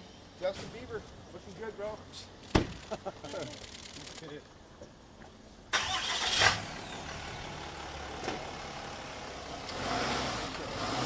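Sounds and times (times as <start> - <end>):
road noise: 0.0 - 11.0
truck engine accelerating: 5.8 - 11.0.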